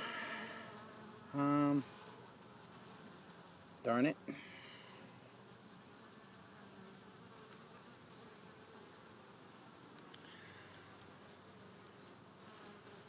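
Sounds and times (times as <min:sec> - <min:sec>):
bees buzzing: 0:00.0 - 0:03.8.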